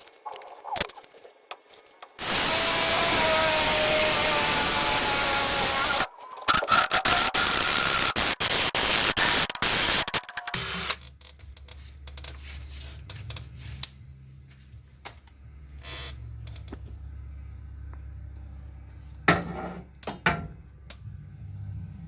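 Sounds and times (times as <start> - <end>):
drill cutting through metal: 2.2 - 11.0.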